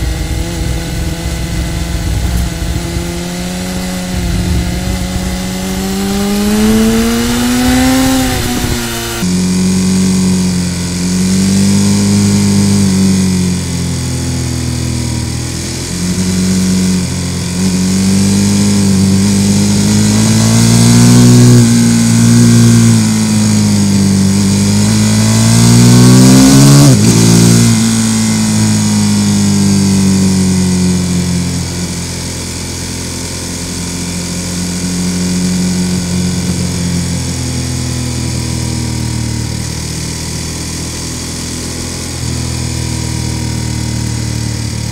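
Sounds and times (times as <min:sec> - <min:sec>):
wind rush: 0:00.0 - 0:09.2
motorcycle engine revving: 0:00.0 - 0:44.9.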